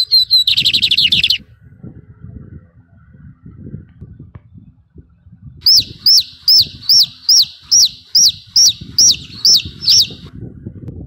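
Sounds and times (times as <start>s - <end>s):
bird calling falling notes: 0.0s - 1.4s, 5.6s - 10.3s.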